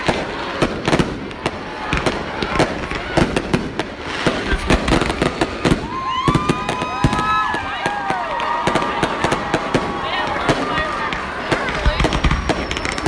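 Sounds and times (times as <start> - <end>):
fireworks bangs and crackles: 0.0 - 13.0
rising firework whistles: 3.1 - 10.7, 11.4 - 13.0.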